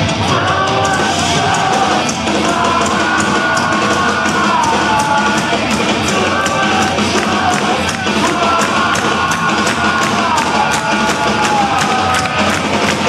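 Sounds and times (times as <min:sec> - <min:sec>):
distorted guitars: 0:00.0 - 0:13.0
drums: 0:00.0 - 0:13.0.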